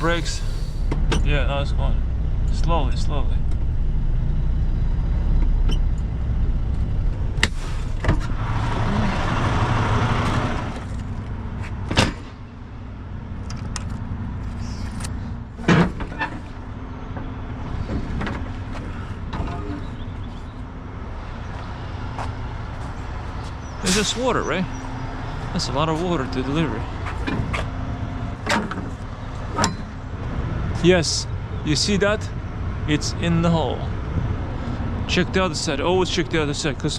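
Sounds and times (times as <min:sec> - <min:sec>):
air hissing: 0:00.0 - 0:01.0, 0:23.8 - 0:24.3
truck diesel engine running: 0:00.0 - 0:36.9
metal clunks: 0:14.9 - 0:20.2, 0:28.3 - 0:30.0.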